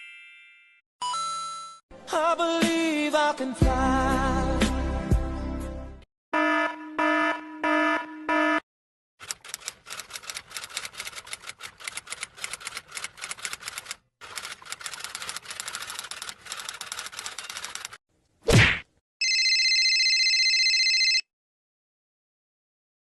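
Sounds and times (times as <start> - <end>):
rapid typing clicks: 9.2 - 18.0.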